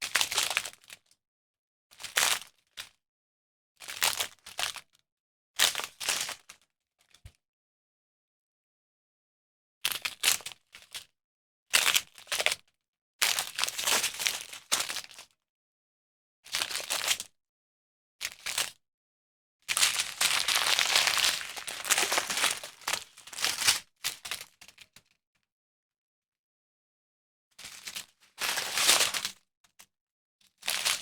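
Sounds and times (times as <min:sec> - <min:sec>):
plastic bags crinkling: 0:19.8 - 0:23.8, 0:28.5 - 0:29.0.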